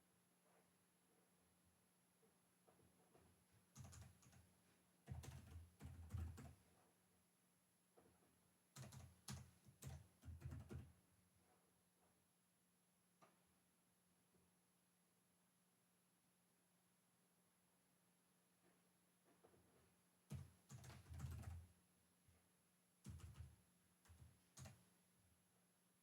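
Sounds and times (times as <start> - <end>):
computer keyboard typing: 3.7 - 4.5, 5.1 - 6.6, 8.8 - 11.0, 20.3 - 21.7, 23.0 - 24.8.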